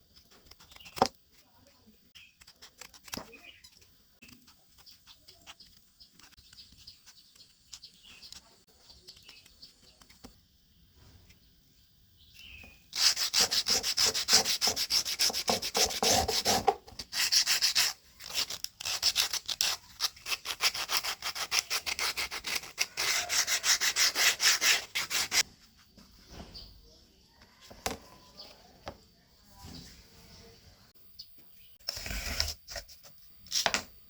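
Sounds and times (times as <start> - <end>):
rubbing strokes on cardboard: 13.0 - 17.9.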